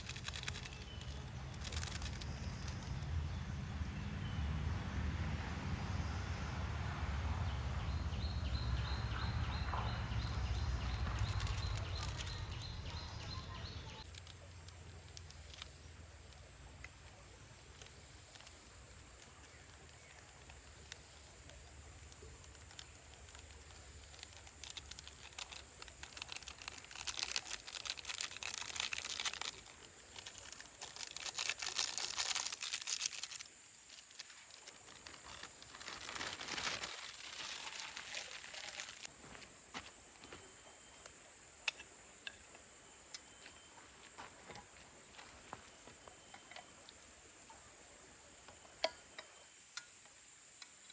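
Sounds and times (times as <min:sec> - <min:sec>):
wrapper crinkling and rustling: 0:00.0 - 0:03.0, 0:10.1 - 0:13.2, 0:14.0 - 0:15.8, 0:17.2 - 0:39.1.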